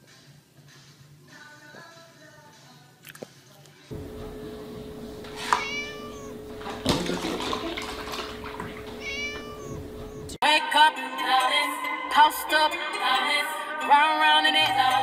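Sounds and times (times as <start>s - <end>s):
music: 0.0s - 3.9s, 10.4s - 15.0s
steady low hum: 3.9s - 10.4s
kitten meowing: 5.1s - 6.8s, 8.3s - 10.4s.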